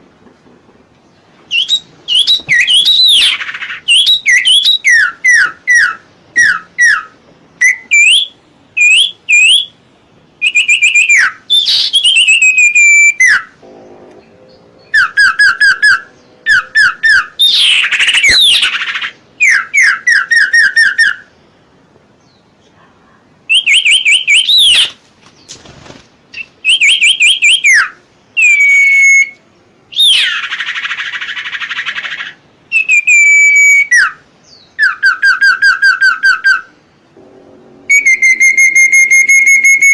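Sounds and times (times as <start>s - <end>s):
bird whistling repeated notes: 1.5s - 9.8s, 10.4s - 13.6s, 14.8s - 21.3s, 23.5s - 25.0s, 26.4s - 36.7s, 37.9s - 39.9s
harsh rasping bird note: 13.3s - 17.8s, 37.1s - 39.9s.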